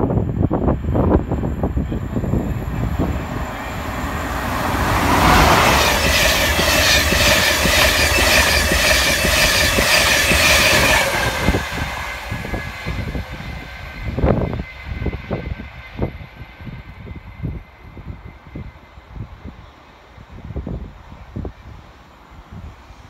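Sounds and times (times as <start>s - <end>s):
steady high whine: 0.0s - 18.1s
electric train passing at speed: 0.0s - 23.0s
wheels clattering over rail joints: 3.0s - 11.6s.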